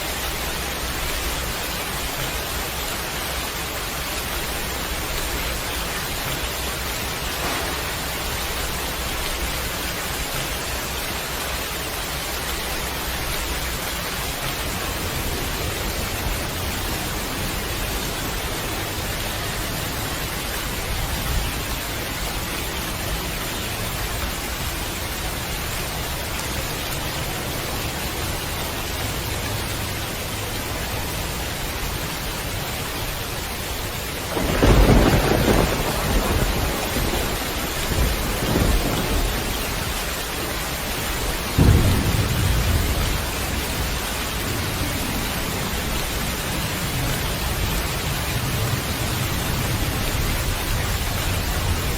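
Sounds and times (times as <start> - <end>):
heavy rain falling: 0.0 - 51.9
low rumble of thunder: 3.8 - 10.8, 34.2 - 51.9.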